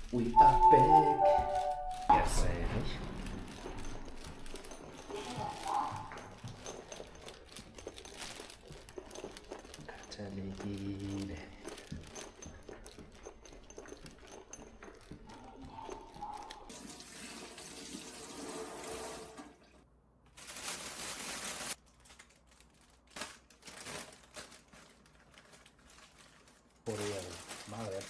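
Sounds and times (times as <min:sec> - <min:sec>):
water running: 0:00.0 - 0:19.8.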